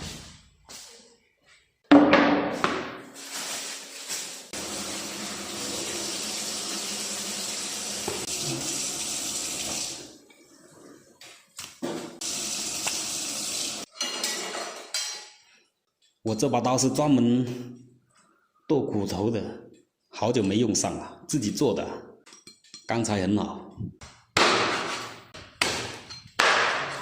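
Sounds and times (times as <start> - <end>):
tap water running into sink: 4.6 - 10.1, 12.2 - 13.9.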